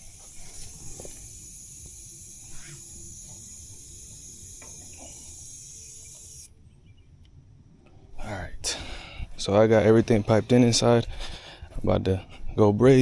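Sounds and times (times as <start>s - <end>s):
pressurised gas hissing: 0.0s - 6.5s.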